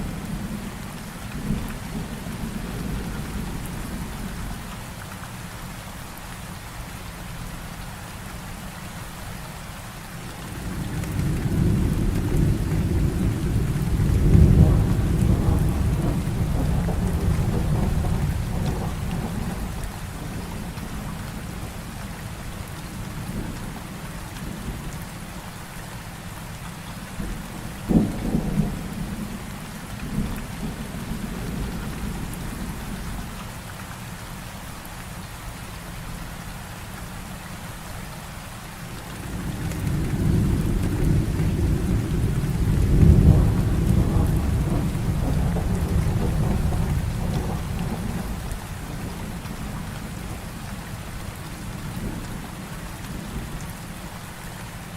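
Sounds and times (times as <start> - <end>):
heavy rain falling: 0.0 - 54.9
low rolling thunder rumble: 10.4 - 24.9, 27.2 - 33.3, 39.1 - 53.6
thunder crack: 11.6 - 19.7, 39.4 - 48.4.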